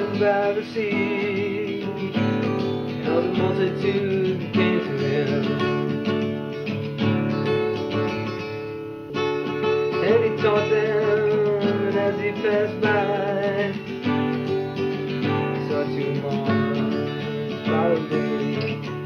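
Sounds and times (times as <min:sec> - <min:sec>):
person singing: 0:00.0 - 0:06.2, 0:09.1 - 0:19.0
strummed acoustic guitar: 0:00.0 - 0:19.0.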